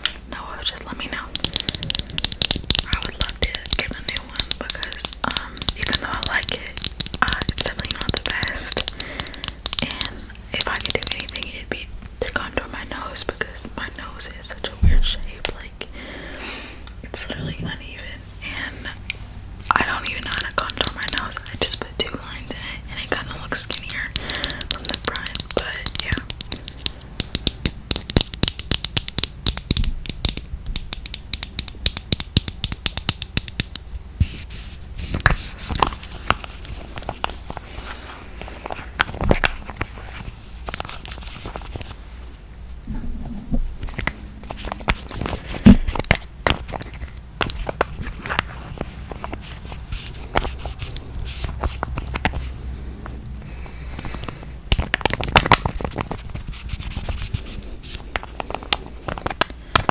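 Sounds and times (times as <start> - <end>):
fingernails tapping on packaging: 1.3 - 11.4, 23.6 - 33.9.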